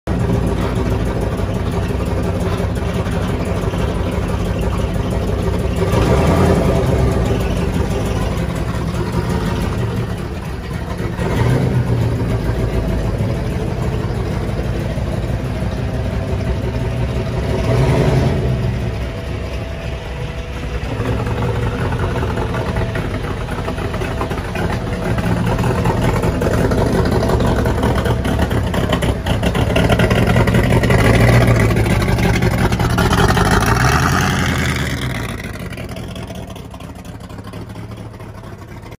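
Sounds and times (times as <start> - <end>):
car engine revving: 0.1 - 38.9.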